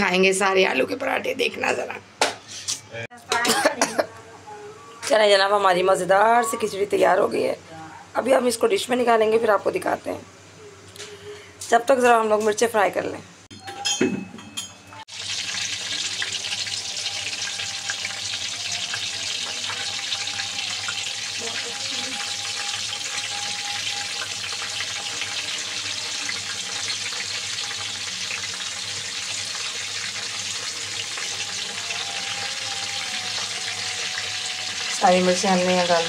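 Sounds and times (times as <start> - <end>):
chillies sizzling in hot oil: 15.1 - 36.0.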